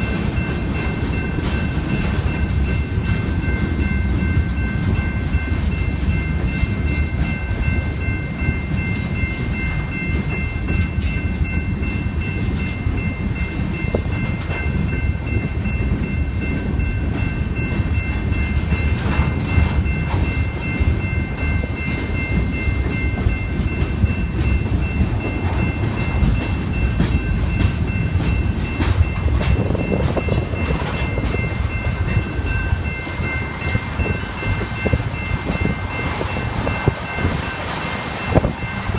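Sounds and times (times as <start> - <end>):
freight train cars rumbling: 0.0 - 38.9
high ringing tone: 0.0 - 38.9
wheels clicking over rail joints: 8.4 - 38.9.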